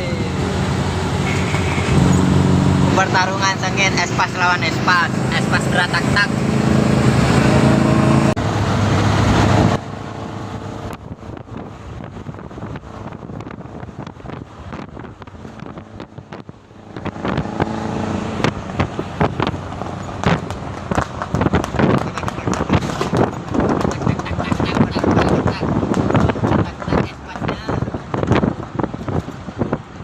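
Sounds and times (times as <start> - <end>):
loud engine drone: 0.0 - 12.0, 15.4 - 23.4
van engine crackling pops: 18.4 - 24.1.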